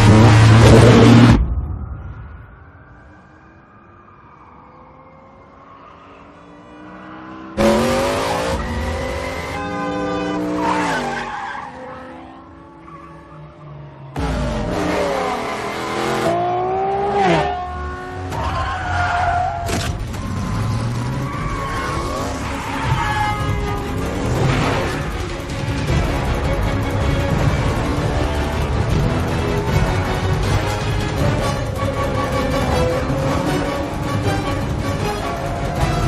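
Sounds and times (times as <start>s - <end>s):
car engine revving hard: 7.6s - 9.7s
tyre squeals: 21.2s - 23.8s.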